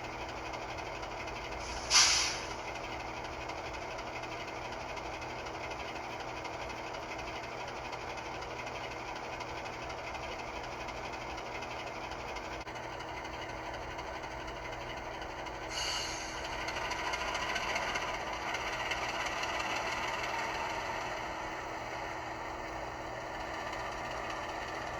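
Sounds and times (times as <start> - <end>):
simulated diesel locomotive engine: 0.0 - 24.9
air hiss: 1.6 - 2.6, 15.7 - 16.4.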